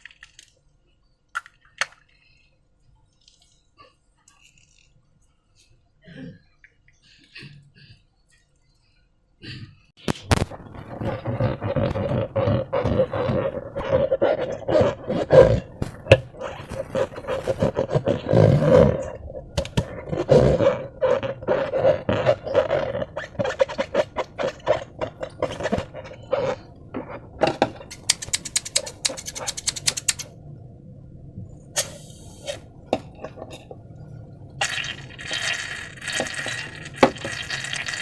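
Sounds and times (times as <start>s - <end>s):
rubber creaking and groaning: 10.0s - 30.3s
fast run of ticks: 27.9s - 30.3s.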